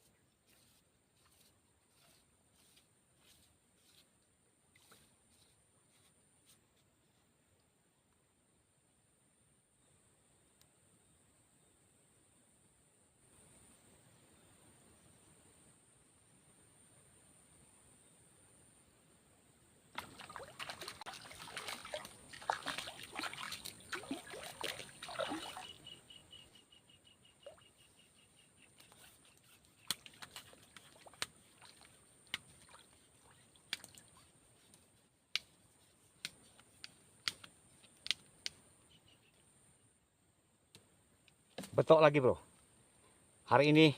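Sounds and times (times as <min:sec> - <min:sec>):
fish splashing and thrashing: 0:20.0 - 0:25.9.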